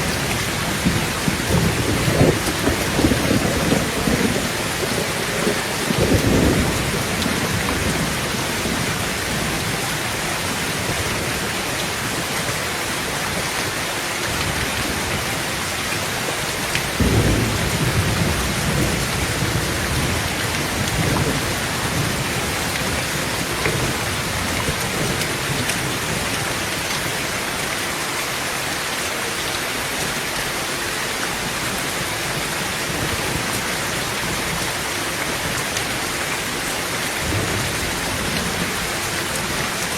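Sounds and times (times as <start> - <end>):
thunder rumbling: 0.0 - 12.3, 16.8 - 26.8, 37.1 - 39.9
heavy rain on a tin roof: 0.0 - 39.9.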